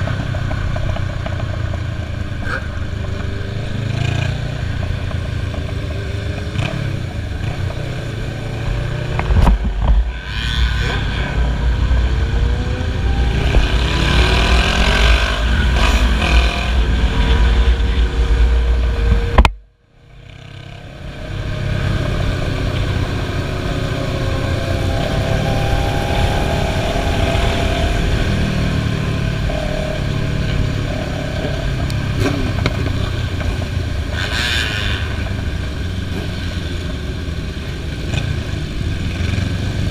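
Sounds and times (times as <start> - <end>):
motorcycle engines running: 0.0 - 39.9.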